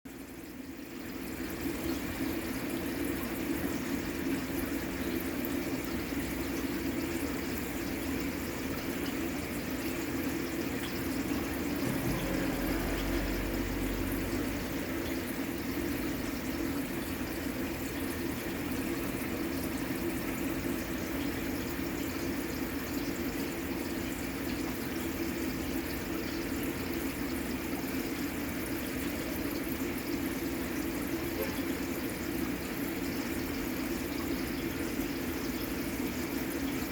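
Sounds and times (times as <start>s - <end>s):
water splashing in fish tank: 0.1s - 36.9s
brief low rumble: 11.5s - 15.1s.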